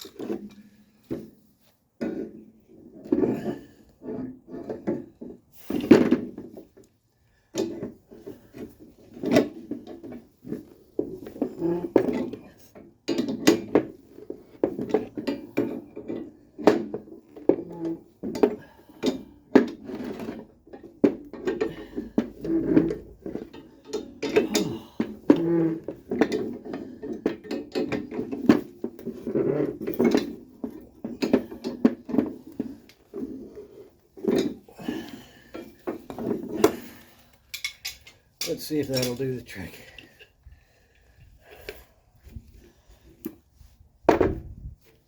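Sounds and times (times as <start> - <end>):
metal tools clinking and clanking: 18.4 - 29.2, 29.8 - 33.3, 35.5 - 40.3.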